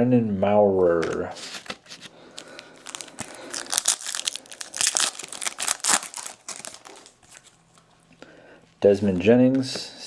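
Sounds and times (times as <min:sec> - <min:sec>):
foil wrapper crinkling and tearing: 0:01.0 - 0:07.6.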